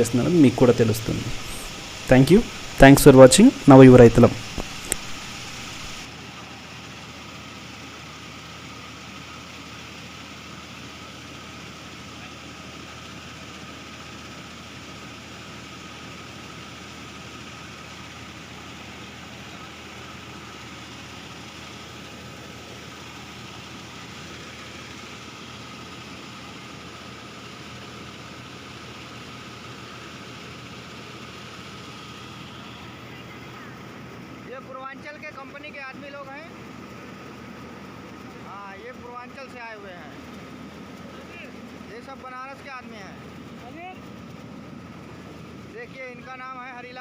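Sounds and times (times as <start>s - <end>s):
rice mill machine hum: 0.0s - 34.4s
tractor engine running: 0.0s - 47.0s.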